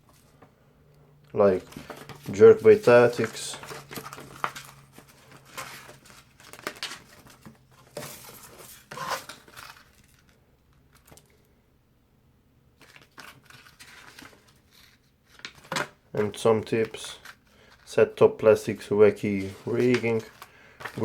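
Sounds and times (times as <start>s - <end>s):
paper pages rustling: 1.5s - 11.3s, 12.8s - 17.9s, 19.1s - 21.0s.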